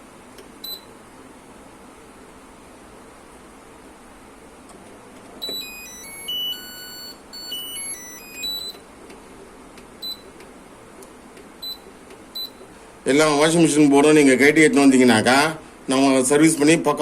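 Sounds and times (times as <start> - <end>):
short button beep: 5.4 - 5.8
electronic power-on beep tune: 5.4 - 8.8.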